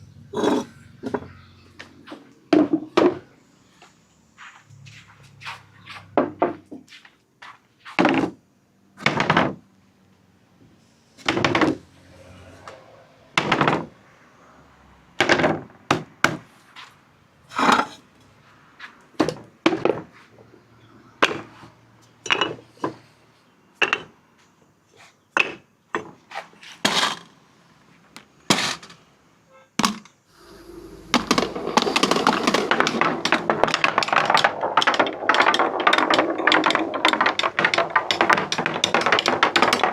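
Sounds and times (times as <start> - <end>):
marbles clacking on track: 30.4 - 39.9
marbles rattling together: 30.4 - 39.9.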